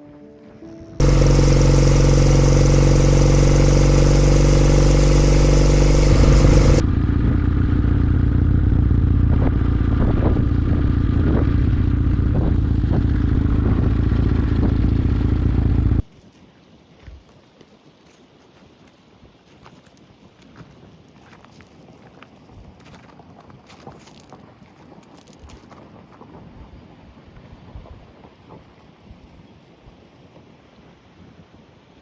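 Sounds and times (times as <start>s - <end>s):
motorcycle engine running: 1.0s - 16.0s.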